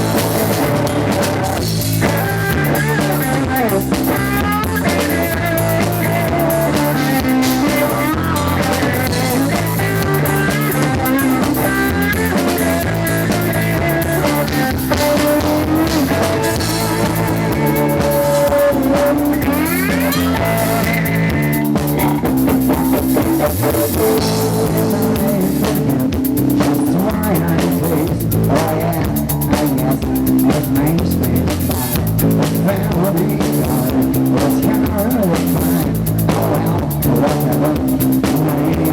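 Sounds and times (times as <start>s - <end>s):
bass guitar: 0.0s - 38.9s
drum kit: 0.0s - 38.9s
rock guitar lines: 0.0s - 38.9s.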